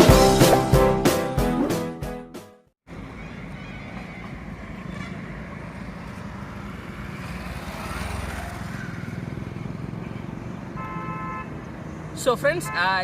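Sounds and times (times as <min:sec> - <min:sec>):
road and wind noise: 0:02.8 - 0:13.0.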